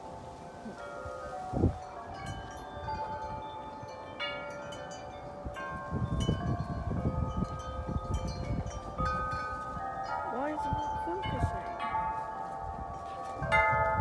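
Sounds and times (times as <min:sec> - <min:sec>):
wind gusts on microphone: 0:00.0 - 0:04.0, 0:05.1 - 0:14.0
wind chimes ringing: 0:00.0 - 0:14.0.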